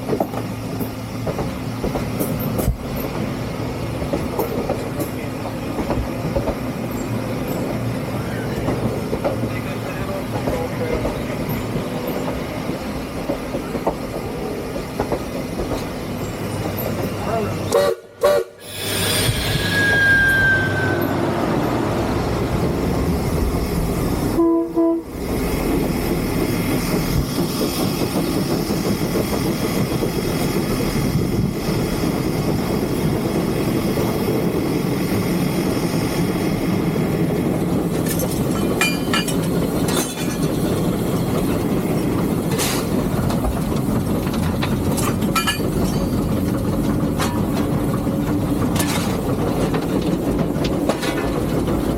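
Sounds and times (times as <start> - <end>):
steam locomotive rumble and hiss: 0.0 - 51.9.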